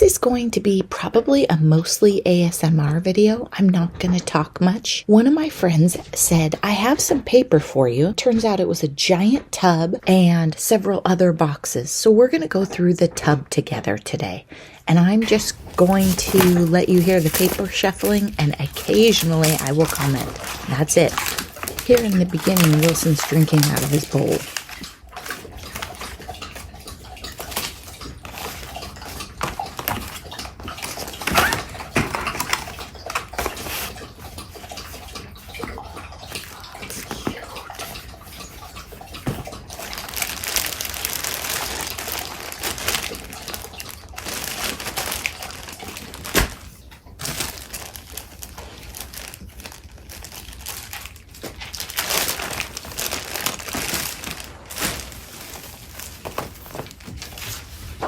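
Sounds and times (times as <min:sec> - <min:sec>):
dog lapping water: 0:00.0 - 0:13.4, 0:14.5 - 0:58.0
paper rustling: 0:15.2 - 0:26.0, 0:39.3 - 0:58.0.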